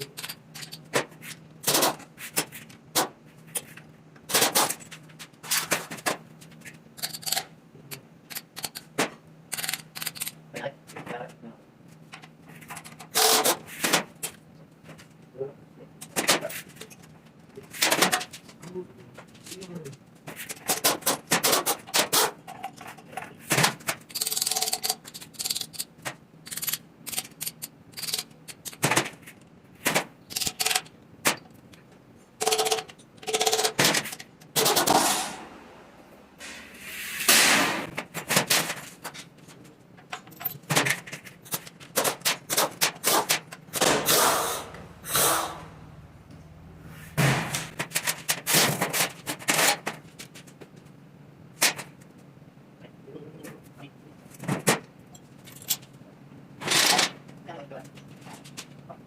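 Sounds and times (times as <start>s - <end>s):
tool rapid clicking: 9.5s - 10.4s, 24.1s - 29.0s, 30.3s - 30.9s, 32.4s - 35.3s.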